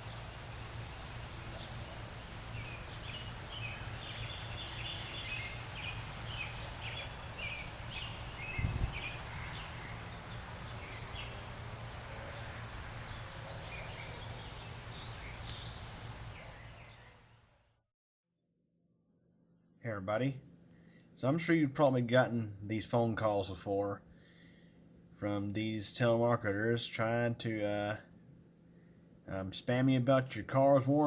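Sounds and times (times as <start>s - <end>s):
steady low hum: 0.0s - 17.1s
small birds chirping: 0.0s - 17.3s.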